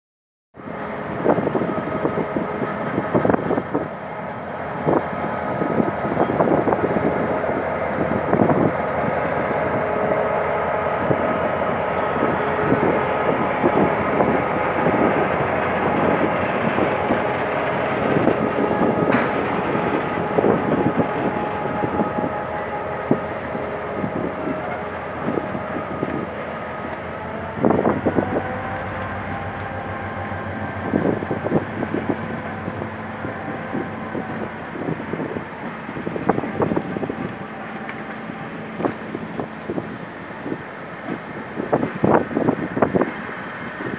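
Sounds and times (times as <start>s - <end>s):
diesel locomotive engine running: 0.6s - 43.9s
train wheels clacking over rail joints: 12.0s - 22.4s.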